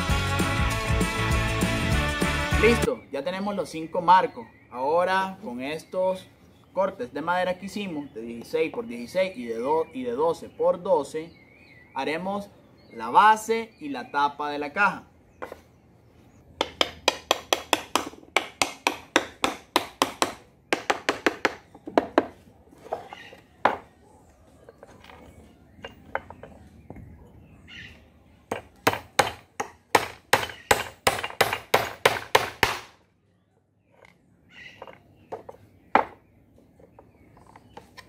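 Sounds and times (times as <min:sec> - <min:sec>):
hammer driving nails into wood: 0:16.6 - 0:22.3, 0:28.5 - 0:33.0.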